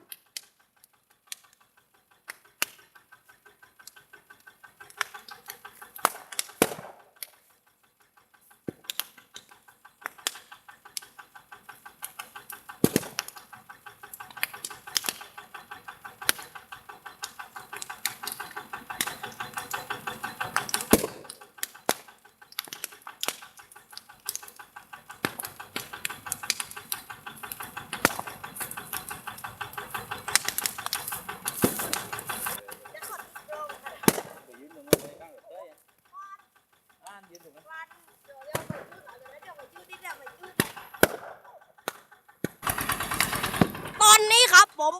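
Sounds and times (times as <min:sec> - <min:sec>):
burning vegetation crackling: 0:08.8 - 0:37.0.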